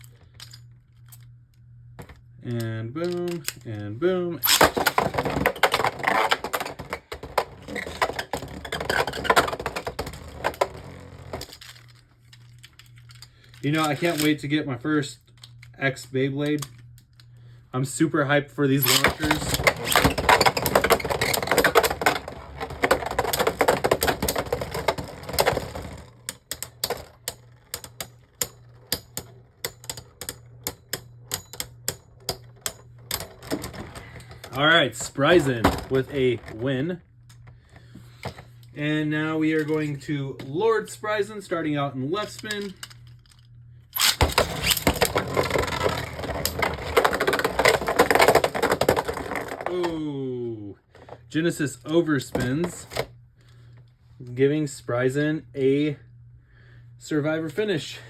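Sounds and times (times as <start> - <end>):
spinning tops clashing and rattling: 18.8 - 36.1.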